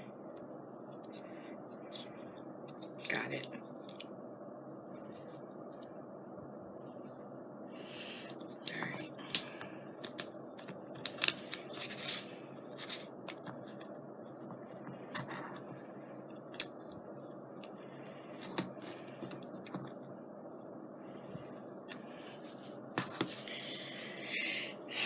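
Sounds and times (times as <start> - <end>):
fan hum: 0.0 - 25.0
craft supplies being handled: 10.0 - 15.8.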